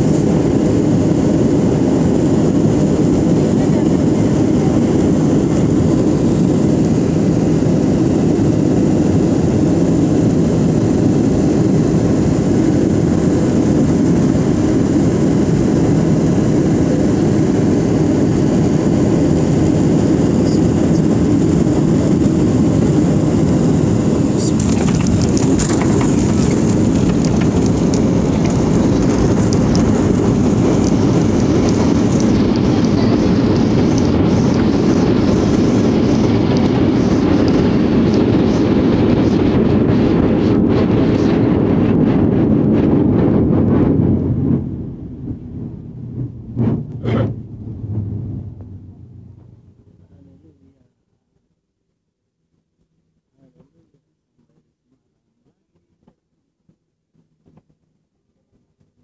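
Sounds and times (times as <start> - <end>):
airliner cabin rumble: 0.0 - 50.8
light clicks and rattles: 24.4 - 33.0.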